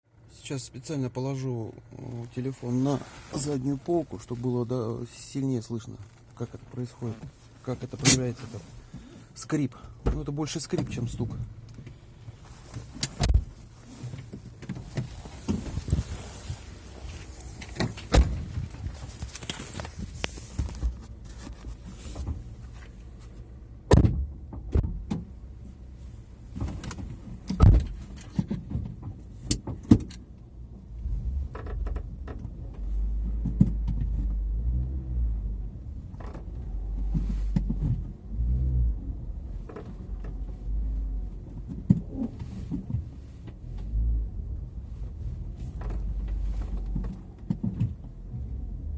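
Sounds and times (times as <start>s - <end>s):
car trunk creaking: 2.2s - 23.0s, 31.3s - 34.4s, 41.1s - 44.0s
low rumble: 30.7s - 47.0s.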